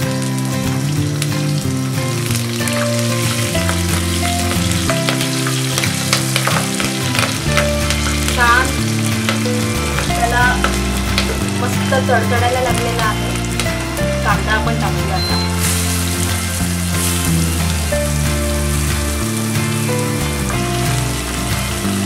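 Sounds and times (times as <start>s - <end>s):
chilies sizzling in hot oil: 0.0s - 22.0s
soft background music: 0.0s - 22.0s.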